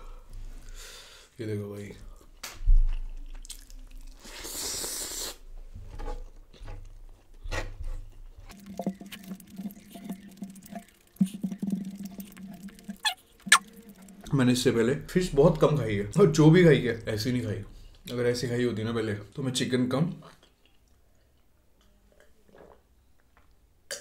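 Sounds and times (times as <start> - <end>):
wet chewing and smacking: 2.2 - 4.5, 8.5 - 14.3
squishy clicks of saucy rice: 2.4 - 5.0.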